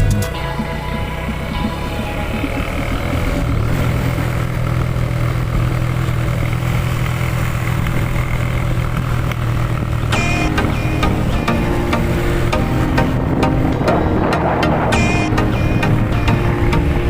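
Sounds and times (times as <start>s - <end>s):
vehicle engine humming: 0.0s - 17.0s
short pitched sounds: 10.0s - 17.0s.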